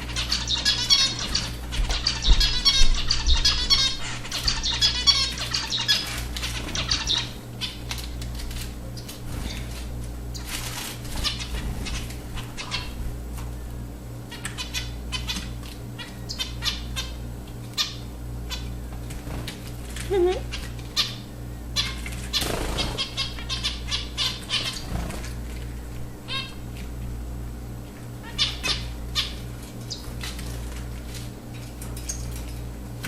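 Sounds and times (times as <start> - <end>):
finches chattering: 0.0 - 8.0, 11.1 - 13.0, 14.3 - 18.8, 20.0 - 25.4, 28.2 - 30.2
steady low hum: 0.0 - 33.0
wing flutters and splashes: 21.9 - 23.1.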